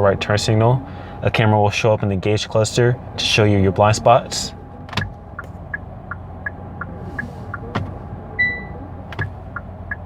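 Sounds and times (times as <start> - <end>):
steady hum: 0.0 - 10.0
turn signal ticking: 2.6 - 10.0.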